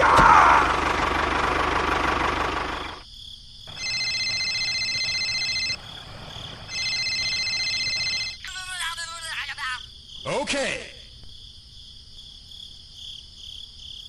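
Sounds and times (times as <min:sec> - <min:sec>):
small engine running: 0:00.0 - 0:03.0, 0:03.7 - 0:08.3.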